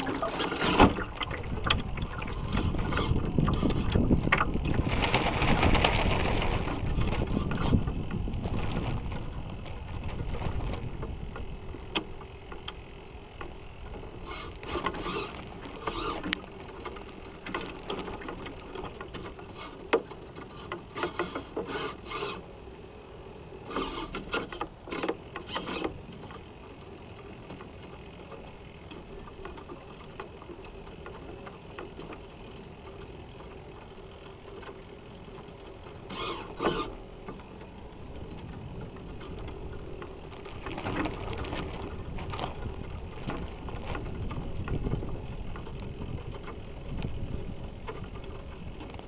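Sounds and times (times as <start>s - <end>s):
faint steady hum: 0.0s - 49.0s
water rushing along hull: 0.0s - 49.0s
servo whirring: 14.2s - 16.4s, 21.0s - 22.4s, 23.7s - 24.5s, 36.1s - 37.0s.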